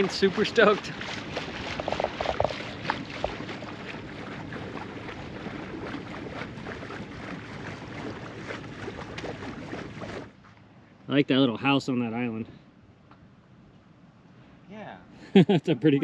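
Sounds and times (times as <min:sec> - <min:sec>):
water noise: 0:00.0 - 0:10.5
wind: 0:00.0 - 0:16.0.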